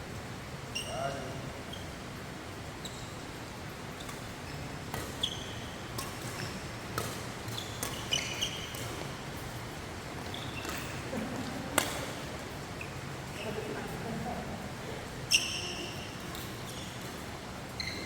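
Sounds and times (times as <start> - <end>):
shoes squeaking on court floor: 0.7 - 2.1, 2.7 - 14.0, 15.2 - 18.0
rackets hitting shuttlecock: 4.1 - 9.5, 10.5 - 12.2.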